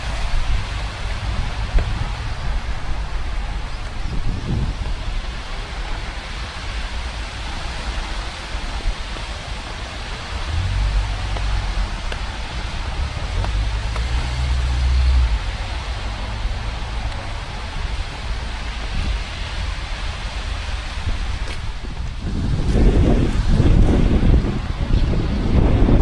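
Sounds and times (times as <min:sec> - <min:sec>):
steady rain falling: 0:00.0 - 0:26.0
low rumble: 0:10.2 - 0:26.0.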